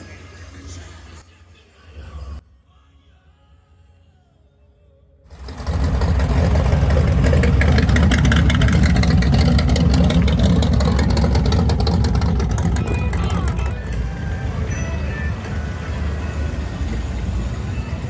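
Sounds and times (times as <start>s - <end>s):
car engine and exhaust rumbling: 5.3s - 18.0s.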